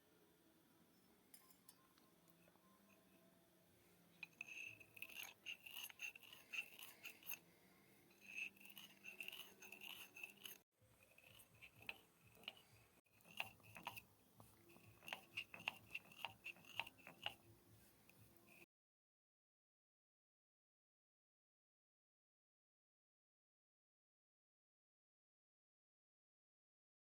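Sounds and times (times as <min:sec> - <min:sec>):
rhythmic scraping of utensils: 0:01.3 - 0:18.6.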